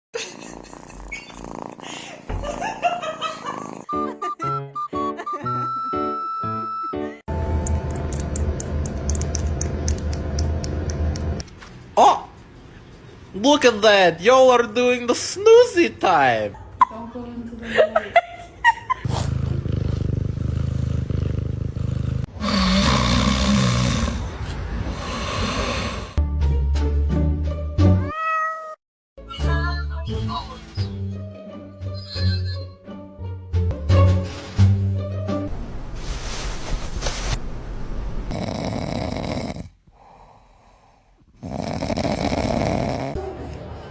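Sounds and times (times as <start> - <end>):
cat purring: 0.4 - 1.9, 3.5 - 3.9, 19.2 - 23.3, 38.3 - 39.7, 41.4 - 43.2.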